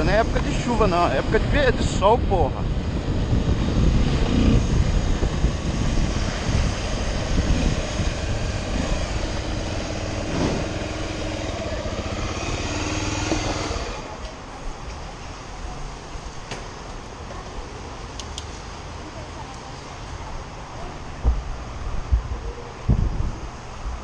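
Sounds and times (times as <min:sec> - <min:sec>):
wind rushing over microphone: 0:00.0 - 0:14.2, 0:21.1 - 0:24.0
motorcycle engine running: 0:03.0 - 0:14.2.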